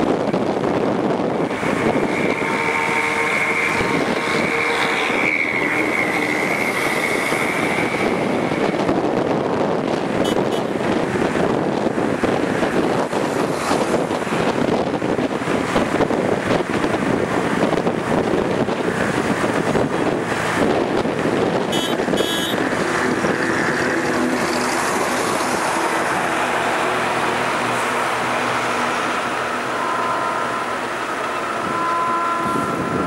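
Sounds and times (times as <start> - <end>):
train running gear rumble: 0.0 - 33.0.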